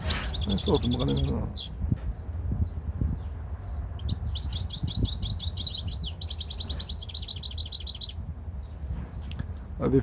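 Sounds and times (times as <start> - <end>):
goldfinch twittering song: 0.0 - 9.7
steady low rumble: 0.0 - 10.0.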